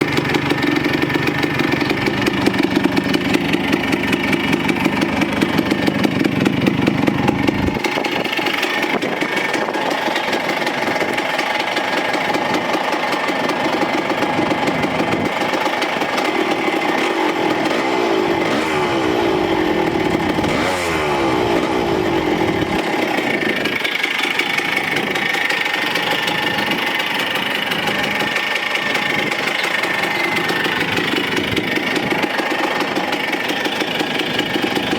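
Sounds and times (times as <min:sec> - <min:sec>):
two-stroke motorcycle engine running: 0:00.0 - 0:34.9.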